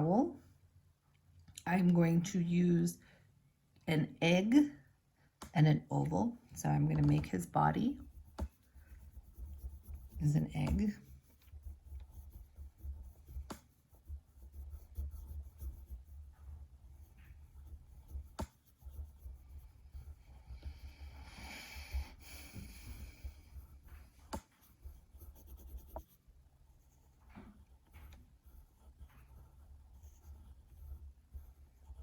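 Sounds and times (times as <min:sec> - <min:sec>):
colouring tool rubbing on paper: 0:06.9 - 0:32.0.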